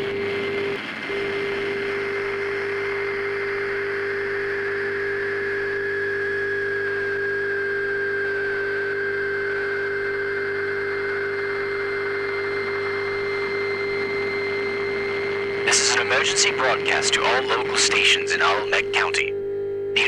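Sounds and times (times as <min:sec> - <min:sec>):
electrical transformer hum: 0:14.7 - 0:20.0
thin high whine: 0:15.5 - 0:19.4
static hiss: 0:15.7 - 0:19.3.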